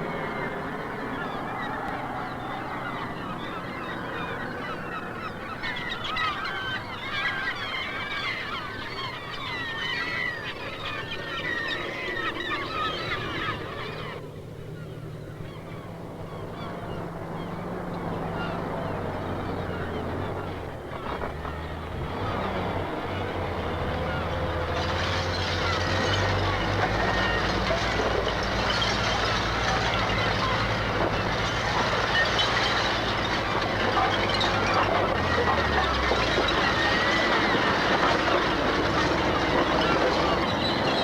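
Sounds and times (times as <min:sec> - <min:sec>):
geese honking: 0:22.0 - 0:41.0.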